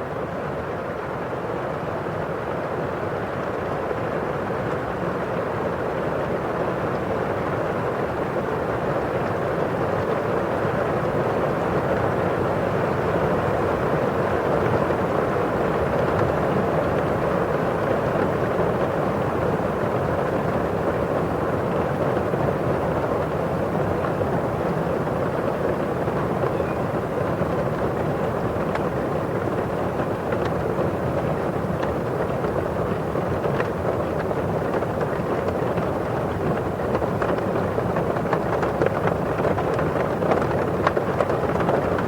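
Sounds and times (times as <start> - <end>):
rain on window pane: 22.9 - 42.0.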